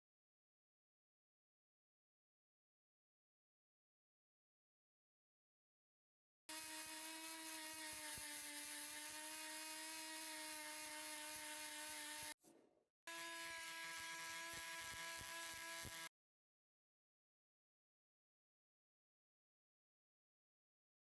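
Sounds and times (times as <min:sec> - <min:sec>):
high-speed rotary tool whine: 0:06.5 - 0:12.4, 0:13.1 - 0:16.1.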